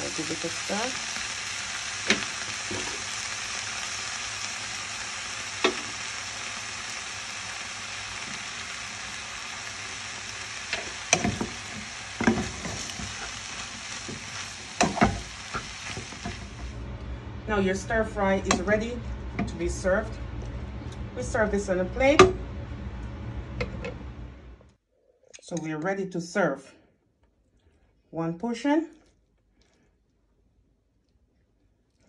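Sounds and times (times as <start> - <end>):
vegetables sizzling in oiled pan: 0.0 - 16.8.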